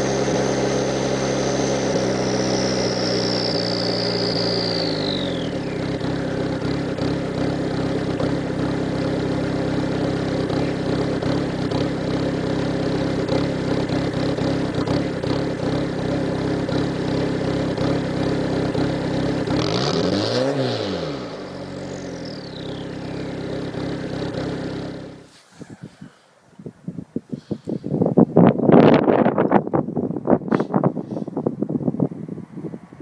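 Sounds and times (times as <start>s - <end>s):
diesel car engine idling: 0.0s - 19.7s, 21.0s - 26.5s
engine revving: 0.0s - 26.2s.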